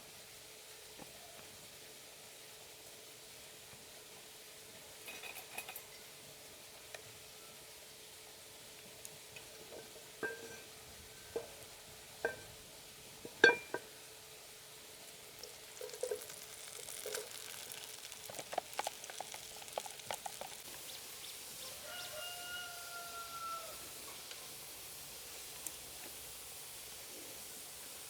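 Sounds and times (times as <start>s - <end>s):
food sizzling in a pan: 1.7s - 28.0s
cookware clinking: 9.8s - 10.7s, 13.3s - 13.9s.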